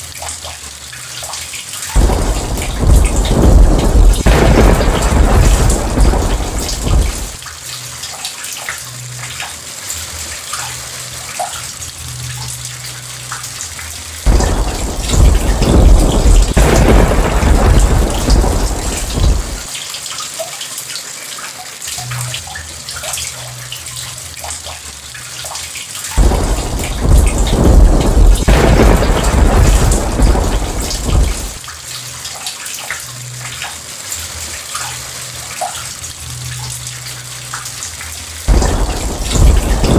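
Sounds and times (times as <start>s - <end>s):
steady rain with drips: 0.0s - 39.9s
thunder rumbling: 2.0s - 7.4s, 14.3s - 19.7s, 26.2s - 31.6s, 38.5s - 39.9s.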